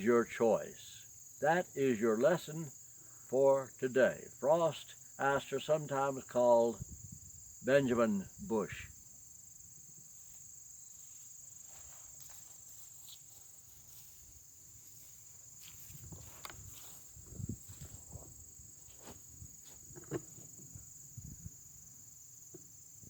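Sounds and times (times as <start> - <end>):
crickets trilling: 0.0 - 23.0
soft thumps and rustles: 15.6 - 20.9.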